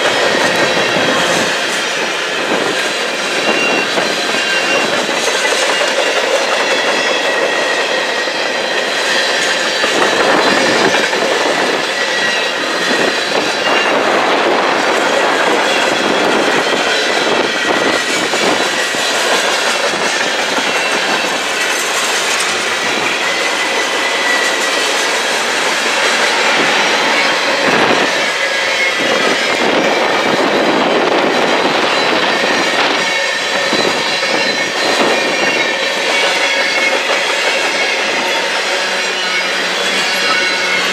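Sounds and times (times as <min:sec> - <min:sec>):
train wheels clattering over rails: 0:00.0 - 0:40.9.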